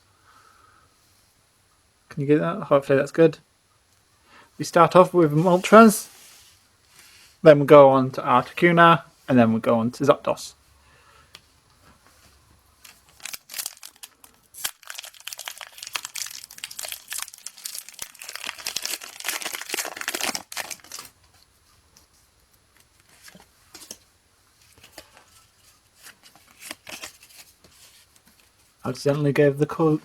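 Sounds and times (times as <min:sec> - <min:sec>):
foil wrapper tearing and crinkling: 0:12.8 - 0:21.2, 0:26.4 - 0:27.3.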